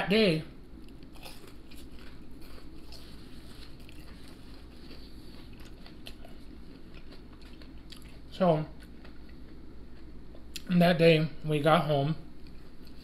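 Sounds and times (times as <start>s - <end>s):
person chewing crispy food: 0.7s - 10.7s.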